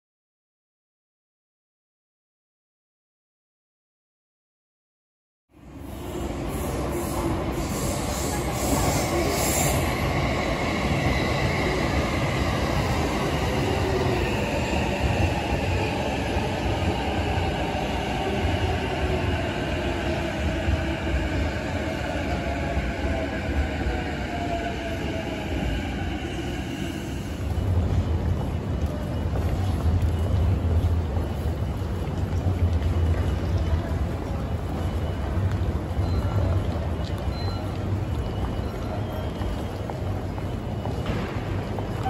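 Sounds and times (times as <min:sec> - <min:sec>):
train wheels rumbling on rail: 0:05.6 - 0:42.0.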